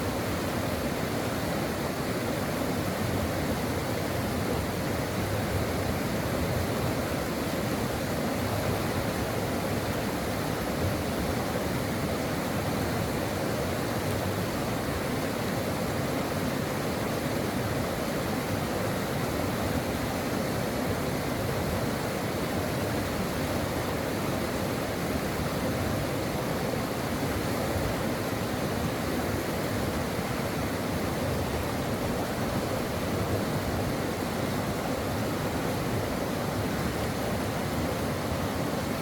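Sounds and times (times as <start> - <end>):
stream water running: 0.0 - 39.0.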